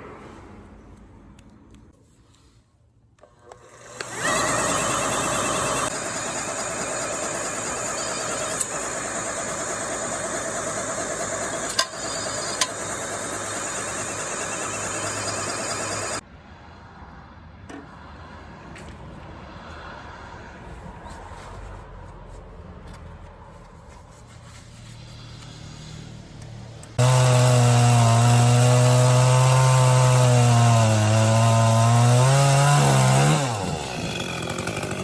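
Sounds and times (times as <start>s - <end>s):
power tool motor running: 3.3s - 16.2s, 27.0s - 35.0s.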